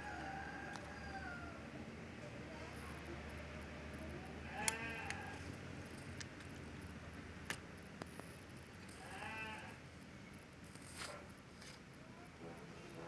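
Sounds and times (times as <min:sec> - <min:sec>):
sharp clicks: 0:04.5 - 0:05.3.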